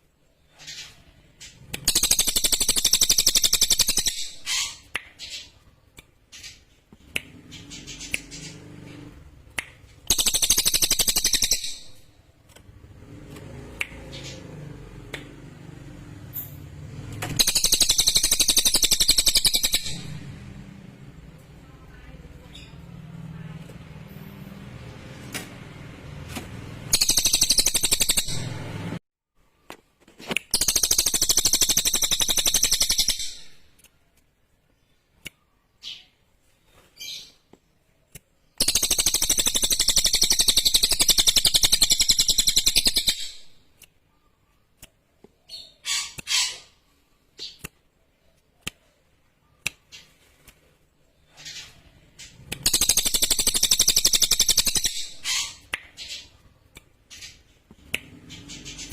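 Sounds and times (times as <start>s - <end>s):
songbird chattering song: 10.0s - 12.1s, 17.4s - 23.4s, 38.5s - 50.1s, 51.1s - 58.9s.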